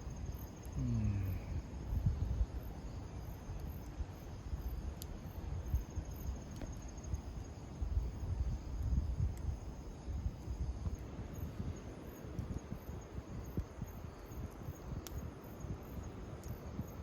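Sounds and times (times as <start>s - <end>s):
high insect trill: 0.0s - 17.0s
insects chirping: 0.0s - 17.0s
faint clicks: 14.5s - 15.2s.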